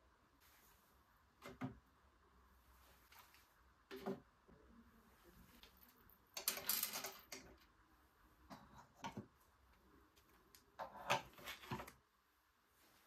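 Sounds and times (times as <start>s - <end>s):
objects rustling and knocking: 10.7s - 12.0s.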